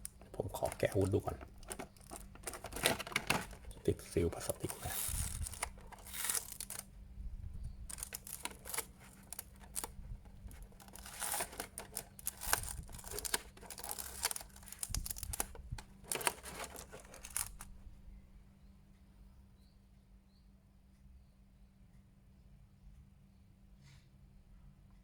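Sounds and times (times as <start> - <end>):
plastic bag crinkling and tearing: 0.0 - 6.8, 7.9 - 9.9, 10.5 - 17.7.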